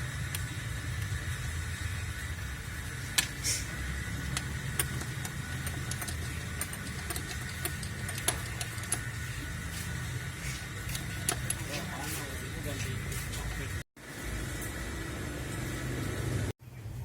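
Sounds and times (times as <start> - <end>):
car engine idling: 0.0 - 16.5
brief hiss: 3.4 - 3.7.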